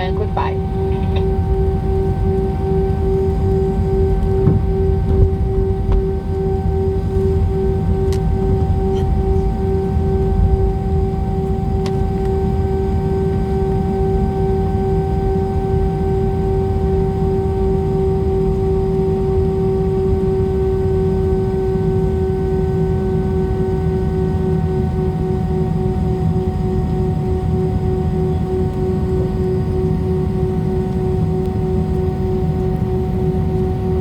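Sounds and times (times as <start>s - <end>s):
jet airliner cabin rumble and whine: 0.0s - 34.0s.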